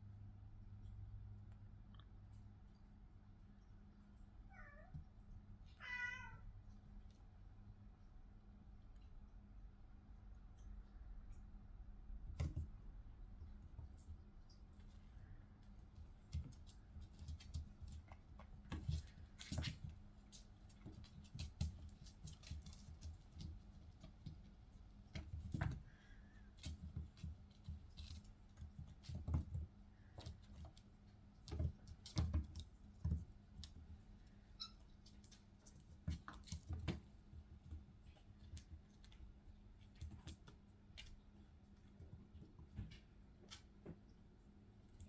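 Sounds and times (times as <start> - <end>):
faint low hum: 0.0 - 45.0
kitten paws tapping and scuffing: 12.2 - 45.0.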